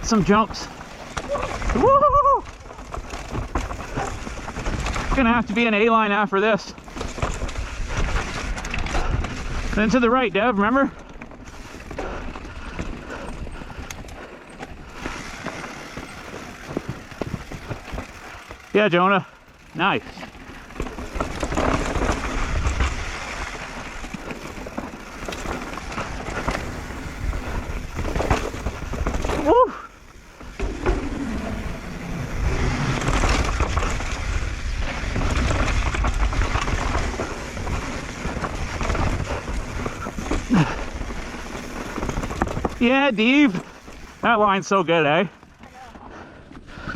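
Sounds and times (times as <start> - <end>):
bike tyres rolling on dirt: 0.0 - 46.9
bike knocks and rattles: 0.1 - 6.0, 6.6 - 44.2
wind rumbling on microphone: 20.8 - 29.6, 30.3 - 42.8.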